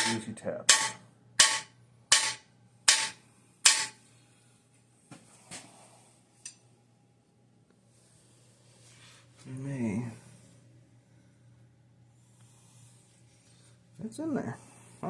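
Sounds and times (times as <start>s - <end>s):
hammer tapping metal: 0.0s - 4.0s.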